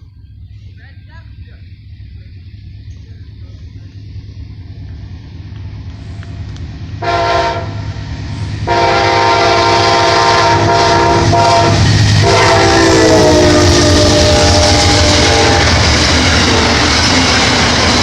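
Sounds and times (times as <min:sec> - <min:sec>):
train rumble: 0:00.0 - 0:18.0
locomotive air horn blasts: 0:07.0 - 0:08.0, 0:08.6 - 0:16.8.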